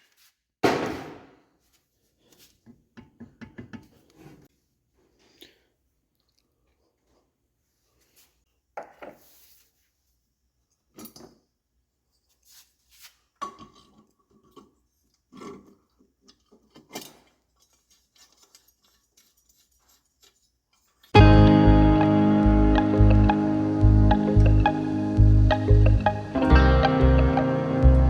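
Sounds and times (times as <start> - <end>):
metal tools clinking and knocking: 16.3 - 21.1.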